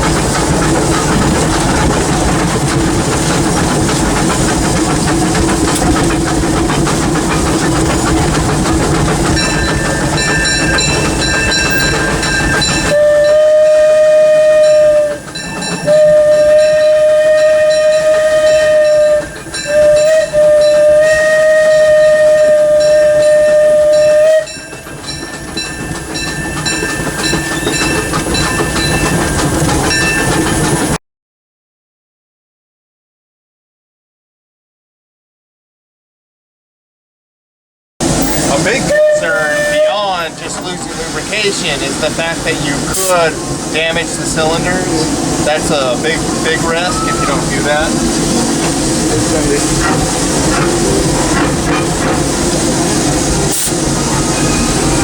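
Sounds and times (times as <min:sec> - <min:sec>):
steam locomotive running: 0:00.0 - 0:31.0, 0:38.0 - 0:55.0
steam whistle blowing: 0:09.8 - 0:24.8, 0:38.2 - 0:41.6, 0:52.3 - 0:55.0.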